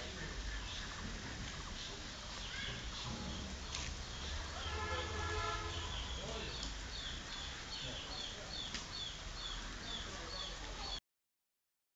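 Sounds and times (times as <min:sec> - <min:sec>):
bird chirping: 0:01.6 - 0:11.0.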